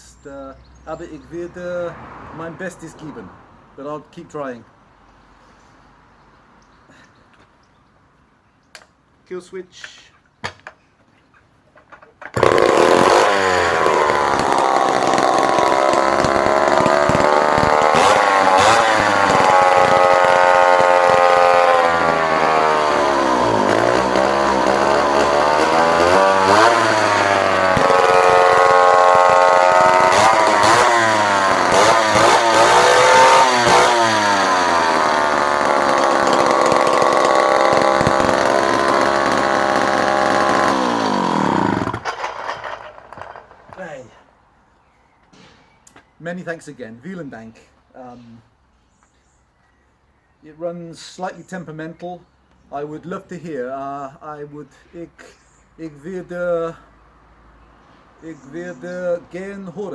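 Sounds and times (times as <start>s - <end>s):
chainsaw engine revving: 12.3s - 43.9s.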